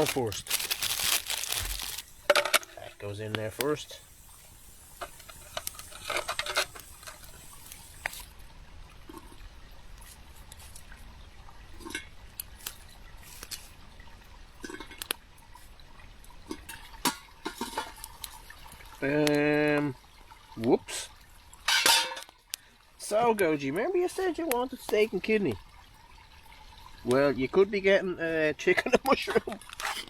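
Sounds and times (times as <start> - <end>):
wood fire crackling: 0.0 - 8.4.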